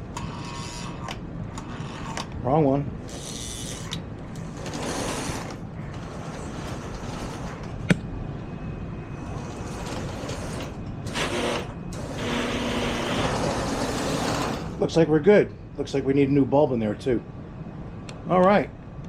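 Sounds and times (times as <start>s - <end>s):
model train motors whirring: 3.1s - 7.7s, 9.2s - 14.8s.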